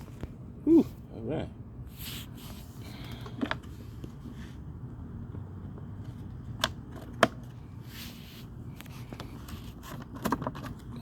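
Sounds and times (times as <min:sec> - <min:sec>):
low steady hum: 0:00.0 - 0:11.0
soft rustle: 0:07.8 - 0:10.0.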